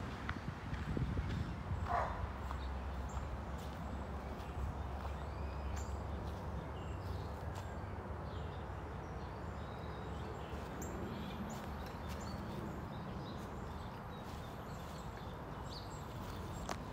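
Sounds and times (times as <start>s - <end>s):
small birds chirping: 0.8s - 16.9s.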